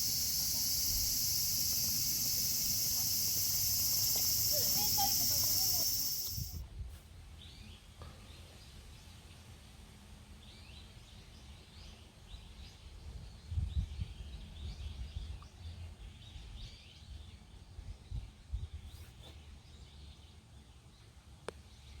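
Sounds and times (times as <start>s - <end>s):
small birds chirping: 0.0s - 6.6s.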